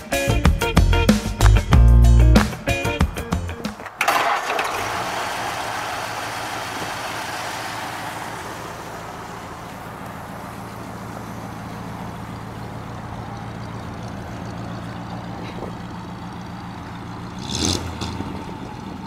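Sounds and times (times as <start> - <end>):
rushing noise: 3.6 - 13.3
car engine idling: 3.8 - 19.0.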